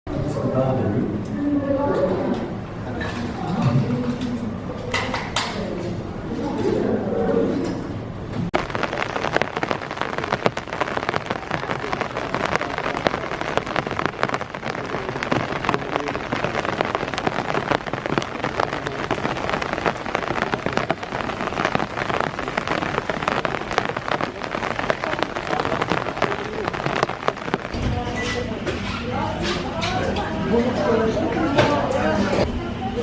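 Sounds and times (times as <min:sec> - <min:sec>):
rain pattering on hard surface: 0:08.5 - 0:28.4.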